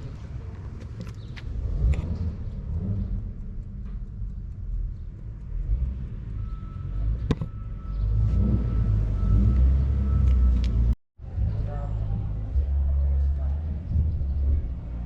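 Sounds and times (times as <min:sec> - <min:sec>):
car engine rumbling: 0:00.0 - 0:15.0
sharp click: 0:03.1 - 0:07.6.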